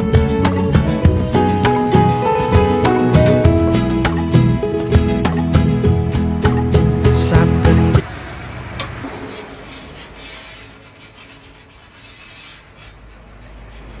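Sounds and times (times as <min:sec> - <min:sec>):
scratchy rubbing strokes on glass: 0:09.3 - 0:14.0.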